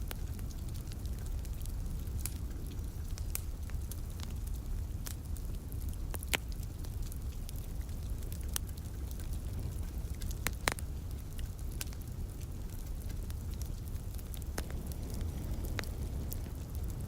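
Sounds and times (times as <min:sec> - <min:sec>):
wood fire crackling: 0:00.0 - 0:17.0
low rumble: 0:14.4 - 0:17.0.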